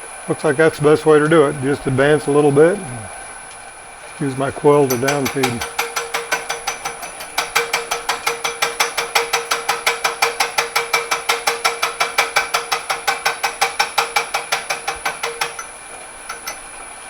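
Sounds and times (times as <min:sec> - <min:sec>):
fly cutter ticking on metal: 0:04.2 - 0:17.0
machine spindle running: 0:04.2 - 0:17.0.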